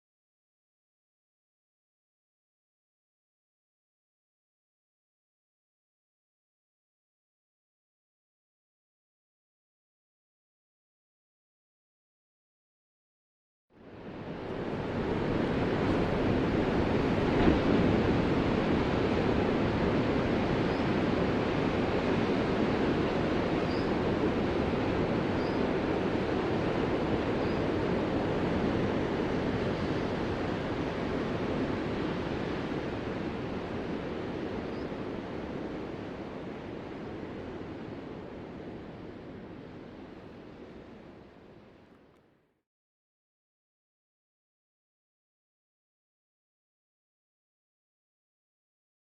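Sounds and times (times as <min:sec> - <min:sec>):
ocean waves breaking: 0:14.0 - 0:41.0.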